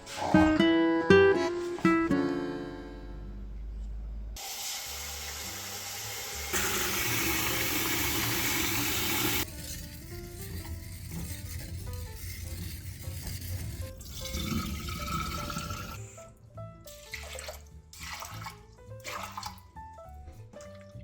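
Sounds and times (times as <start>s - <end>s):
tap water running into sink: 4.4s - 9.5s, 14.0s - 16.0s, 16.9s - 19.7s.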